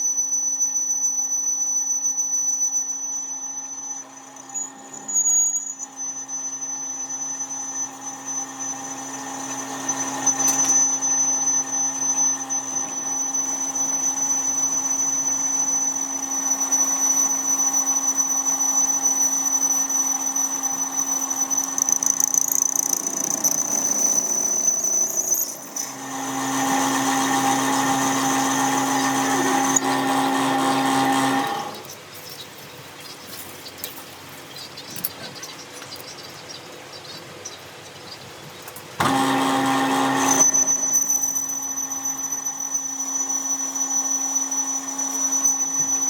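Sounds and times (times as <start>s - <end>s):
power tool humming and whining: 0.0s - 32.0s, 38.0s - 46.0s.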